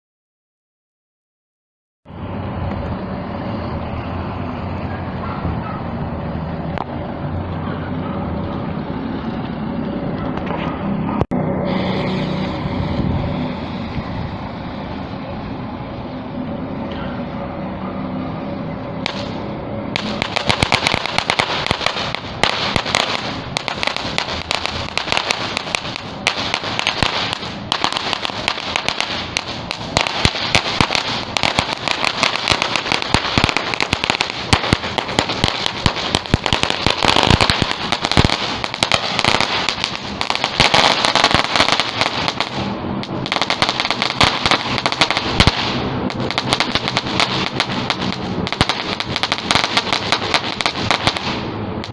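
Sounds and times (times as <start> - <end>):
firecrackers crackling: 8.9 - 15.2, 19.0 - 51.9.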